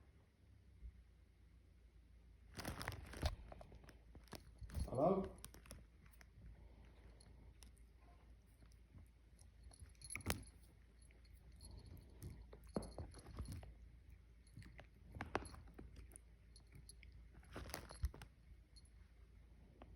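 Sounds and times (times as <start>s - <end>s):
light metallic jingling: 4.3s - 19.3s.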